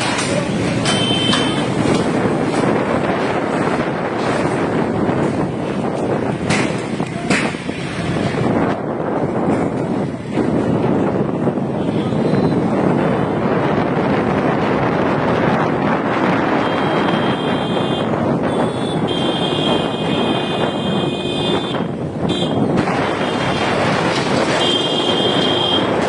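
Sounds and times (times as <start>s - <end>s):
street noise: 0.0s - 26.0s
bulldozer running: 12.6s - 26.0s.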